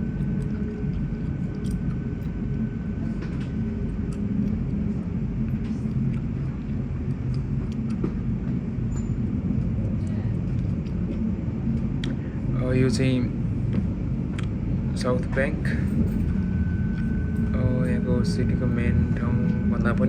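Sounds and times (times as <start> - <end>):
train low rumble: 0.0 - 20.0
thin high whine: 15.0 - 20.0.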